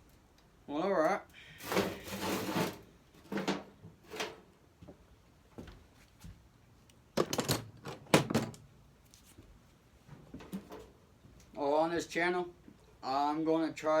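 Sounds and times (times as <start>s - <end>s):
objects knocking and clattering: 1.6s - 4.4s, 7.2s - 8.6s.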